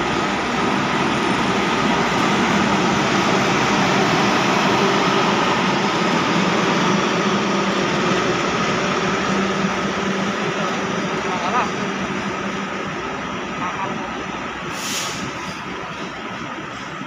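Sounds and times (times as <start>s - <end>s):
locomotive engine drone: 0.0s - 17.0s
train wheels rolling on rails: 0.0s - 17.0s.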